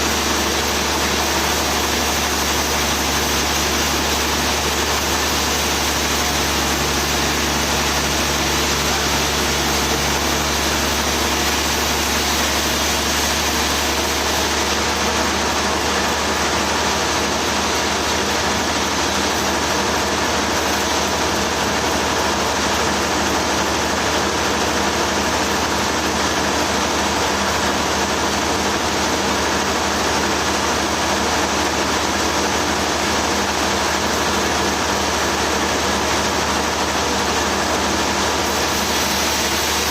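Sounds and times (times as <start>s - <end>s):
sawmill engine humming: 0.0s - 39.9s.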